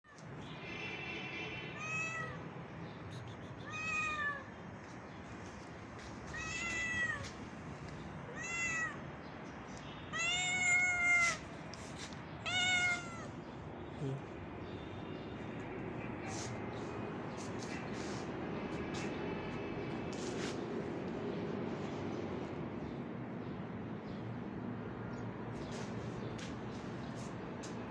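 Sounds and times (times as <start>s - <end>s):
cat meowing: 1.8s - 2.4s, 3.6s - 4.5s, 6.3s - 7.4s, 8.3s - 9.1s, 10.1s - 11.4s, 12.4s - 13.3s.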